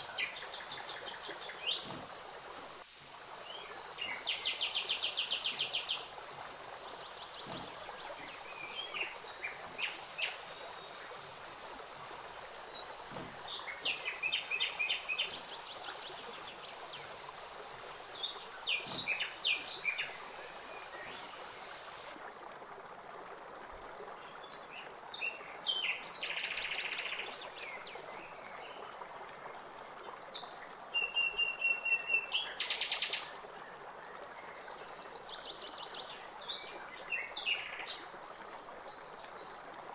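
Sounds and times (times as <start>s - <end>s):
steady hiss: 0.0s - 22.2s.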